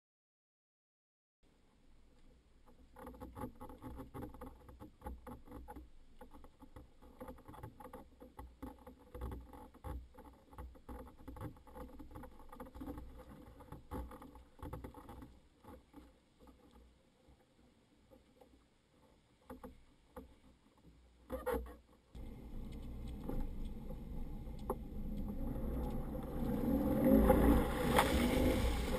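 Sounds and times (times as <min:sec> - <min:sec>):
low rumble: 0:22.2 - 0:28.9
water lapping against boat: 0:22.2 - 0:28.9.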